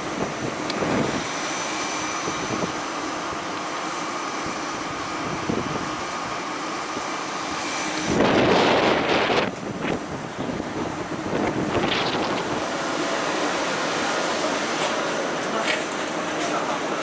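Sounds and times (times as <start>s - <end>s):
wind noise on microphone: 0.0s - 1.4s, 2.0s - 3.5s, 4.4s - 12.9s
faint whine: 0.0s - 15.5s
train rushing rumble: 0.0s - 17.0s.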